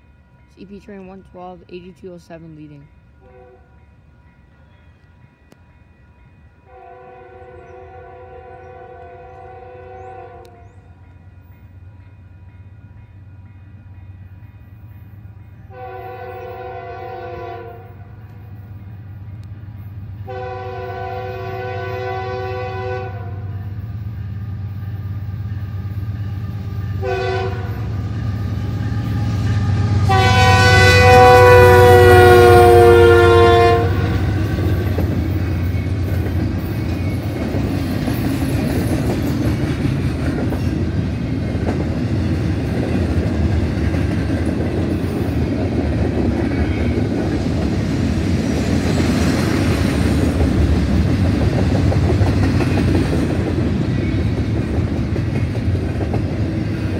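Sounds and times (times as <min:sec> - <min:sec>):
rumble of rolling freight cars: 0:00.0 - 0:56.9
locomotive air horn blasts: 0:03.2 - 0:03.7, 0:06.7 - 0:10.7, 0:15.7 - 0:18.2, 0:20.2 - 0:23.6, 0:27.0 - 0:27.9, 0:28.6 - 0:34.5
wheels clacking on rails: 0:08.6 - 0:56.9.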